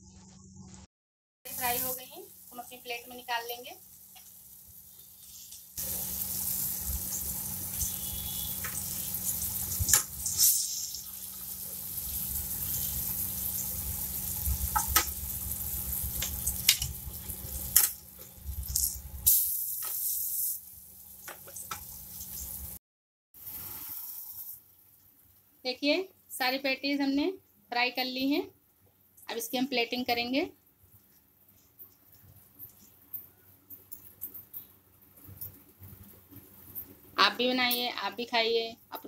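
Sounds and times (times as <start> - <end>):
patties sizzling in oil: 1.5 - 22.8, 23.4 - 25.6.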